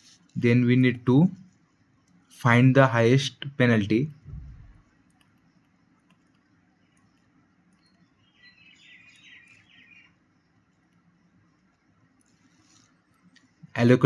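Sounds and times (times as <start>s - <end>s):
faint room hum: 0.0s - 14.0s
bird chirping: 6.6s - 11.6s.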